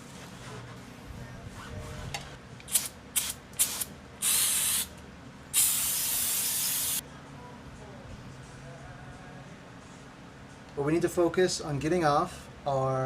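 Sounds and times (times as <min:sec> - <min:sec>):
aerosol can spraying: 0:02.7 - 0:04.9, 0:05.6 - 0:07.0.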